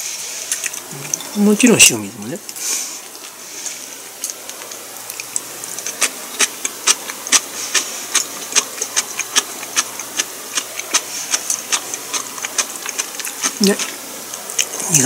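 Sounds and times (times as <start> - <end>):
person chewing food: 0.4 - 1.4, 2.9 - 15.0
mouth smacking clicks: 4.2 - 14.9.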